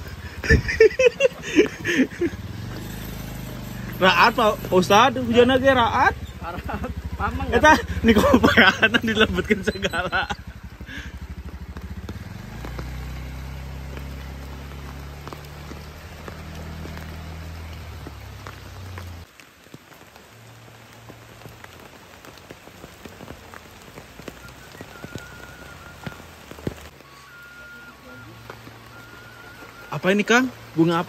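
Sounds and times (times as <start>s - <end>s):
motor scooter engine running: 0.0s - 19.2s
drops striking water and leaves: 0.0s - 31.0s
heavy rain: 0.0s - 31.0s.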